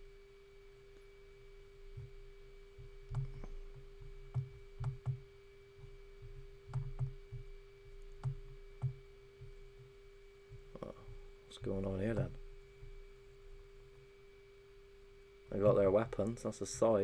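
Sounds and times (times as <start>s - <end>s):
faint electrical hum: 0.0s - 17.0s
computer mouse clicks: 2.8s - 5.2s, 5.9s - 9.6s.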